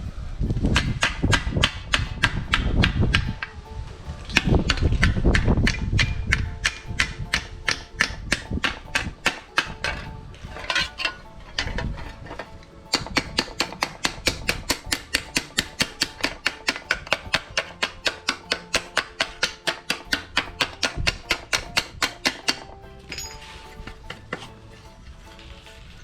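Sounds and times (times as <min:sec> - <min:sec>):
hammer tapping steel sheet: 0:00.6 - 0:26.0.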